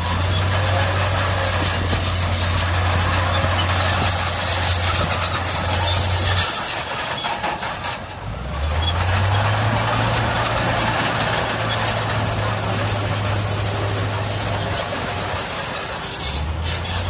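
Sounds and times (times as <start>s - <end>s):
dense metallic clatter: 0.0s - 17.0s.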